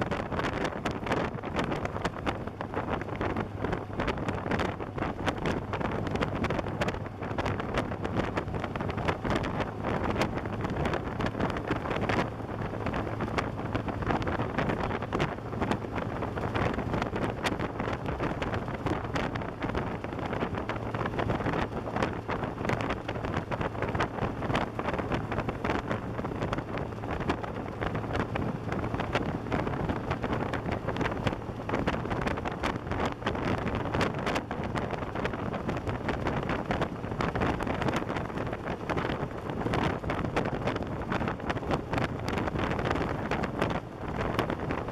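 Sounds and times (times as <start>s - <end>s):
motorcycle engine hum: 0.0s - 44.9s
wind buffeting microphone: 0.0s - 44.9s.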